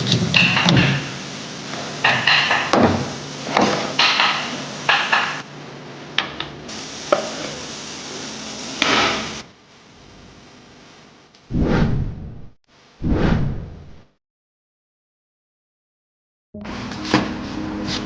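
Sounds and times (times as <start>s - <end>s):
steady hiss: 0.0s - 5.7s, 6.6s - 9.5s.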